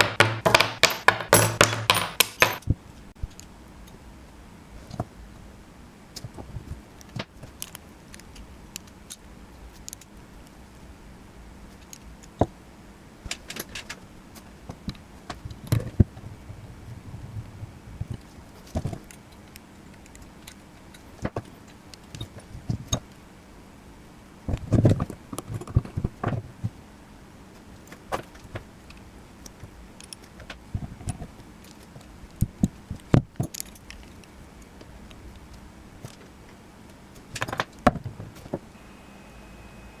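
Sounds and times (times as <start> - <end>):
small metal parts clinking: 33.4 - 34.3.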